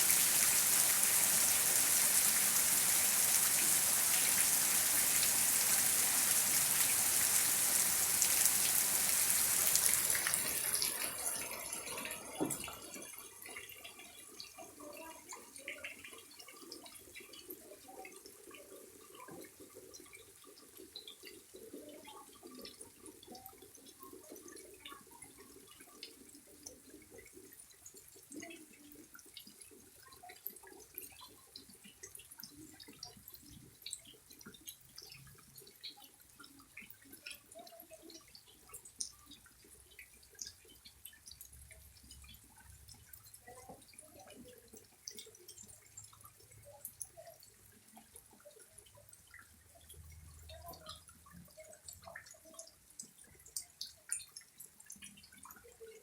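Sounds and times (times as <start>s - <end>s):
heavy rain hissing: 0.0s - 11.3s
water dripping and trickling: 0.0s - 56.0s.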